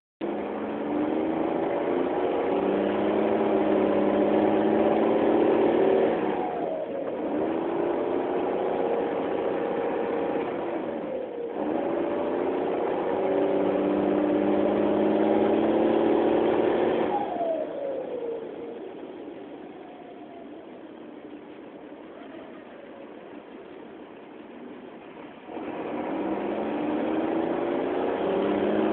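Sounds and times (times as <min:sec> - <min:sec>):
bus diesel engine accelerating: 0:00.2 - 0:28.9.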